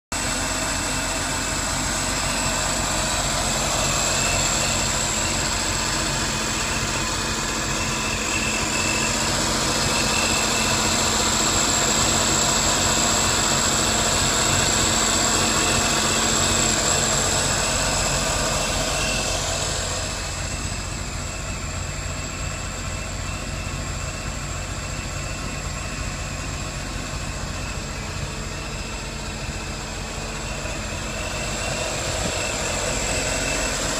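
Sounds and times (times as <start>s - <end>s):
boat engine running: 0.2s - 33.9s
high thin whine: 24.6s - 33.9s.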